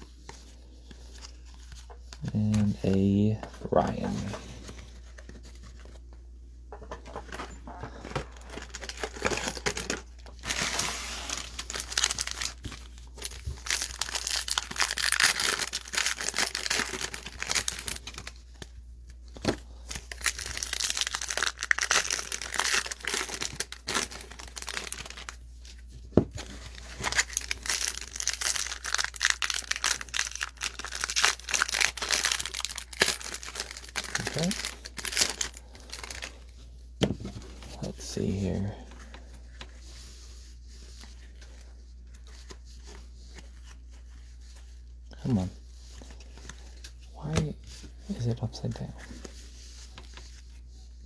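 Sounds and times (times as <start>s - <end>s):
card pack wrappers tearing and crinkling: 1.1s - 6.0s, 7.1s - 36.5s.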